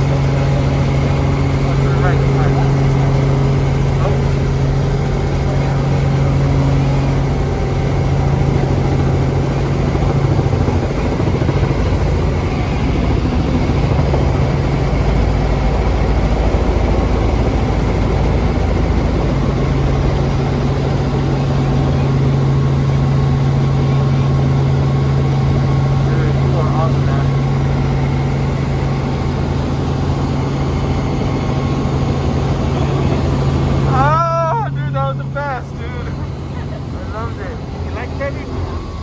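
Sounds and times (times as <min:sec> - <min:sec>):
helicopter engine and rotor: 0:00.0 - 0:39.0.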